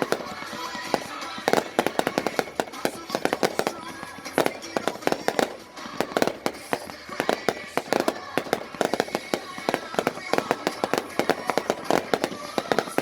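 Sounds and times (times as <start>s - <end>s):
fireworks bangs and pops: 0.0s - 13.0s.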